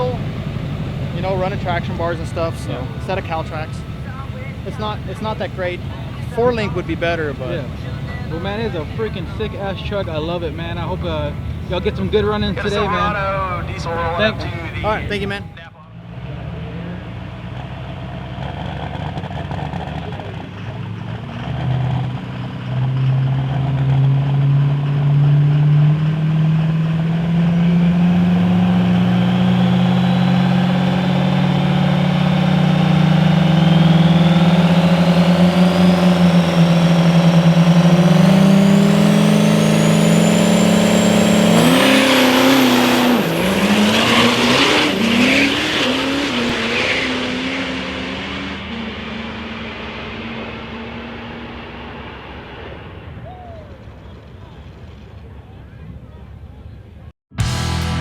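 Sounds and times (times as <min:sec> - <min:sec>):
diesel truck engine under load: 0:00.0 - 0:57.1.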